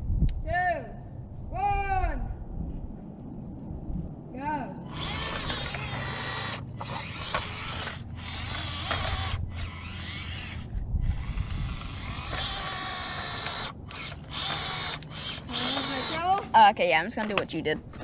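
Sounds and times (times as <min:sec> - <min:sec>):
electric motor and gears whining: 0:04.8 - 0:16.8.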